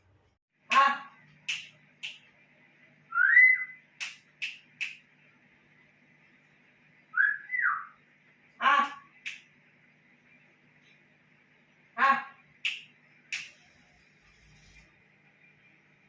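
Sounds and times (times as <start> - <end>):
faint steady hum: 0.1 - 16.0
bird chirps: 3.1 - 3.8, 7.1 - 8.0
rising whistled bird call: 3.1 - 3.8, 7.2 - 8.0.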